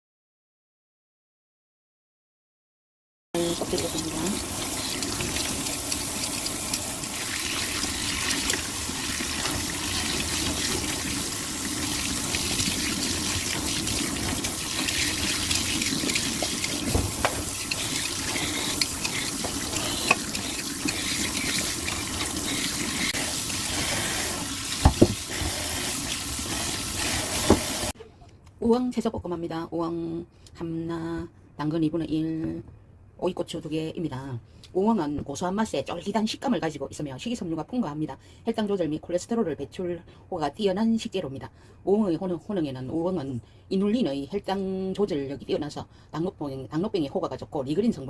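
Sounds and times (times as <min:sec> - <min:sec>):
tap water running into sink: 0:03.4 - 0:27.9
dishes knocking: 0:24.8 - 0:25.2.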